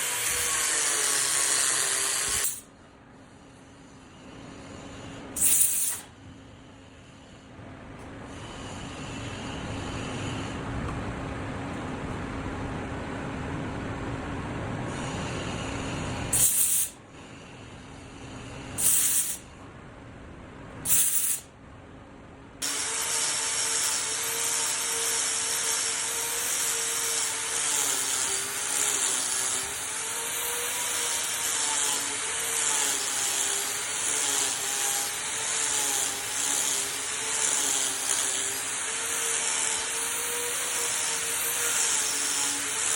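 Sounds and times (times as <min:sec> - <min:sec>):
power tool cutting wood: 0:00.0 - 0:02.6, 0:22.6 - 0:42.9
power tool bursts: 0:00.0 - 0:02.7, 0:05.4 - 0:06.1, 0:16.4 - 0:17.0, 0:18.8 - 0:19.4, 0:20.9 - 0:21.4, 0:22.6 - 0:42.9.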